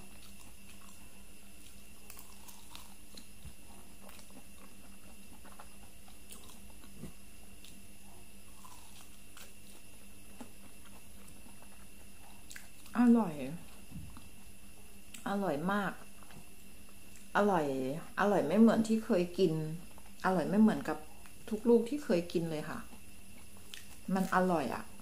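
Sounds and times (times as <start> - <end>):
person chewing soft fruit: 0.0 - 15.3, 16.0 - 17.3, 19.8 - 21.5, 22.8 - 24.4
faint steady hum: 0.0 - 25.0.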